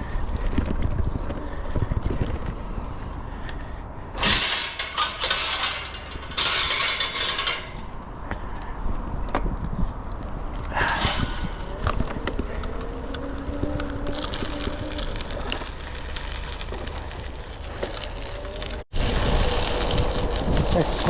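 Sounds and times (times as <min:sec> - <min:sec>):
bicycle rumbling on gravel: 0:00.0 - 0:21.0
tyres crunching on gravel: 0:00.0 - 0:21.0.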